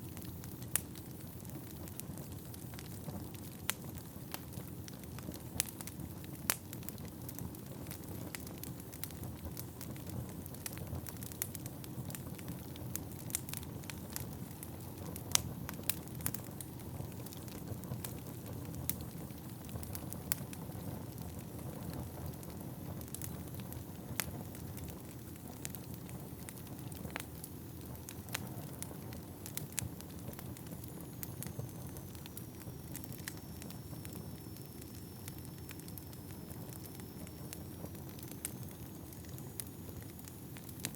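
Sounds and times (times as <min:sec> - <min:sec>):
fire crackling and popping: 0:00.0 - 0:40.9
low rumble of flames: 0:00.0 - 0:40.9
faint high whistle: 0:31.0 - 0:40.5.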